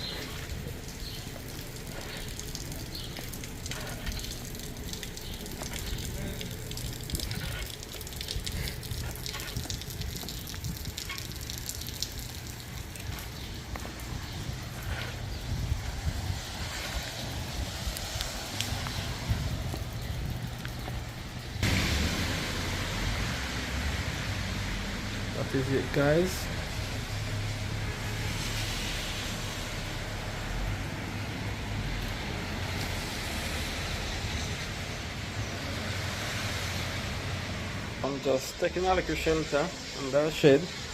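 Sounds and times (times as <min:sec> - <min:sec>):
raindrop ticks: 0:00.0 - 0:22.1
low rumble of rain: 0:00.0 - 0:40.9
wind rumble on microphone: 0:05.7 - 0:11.6, 0:12.8 - 0:21.8.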